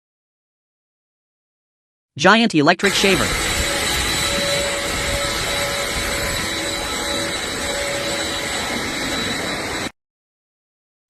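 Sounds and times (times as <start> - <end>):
machine rushing noise: 2.8 - 9.9
constant high whine: 2.8 - 10.0.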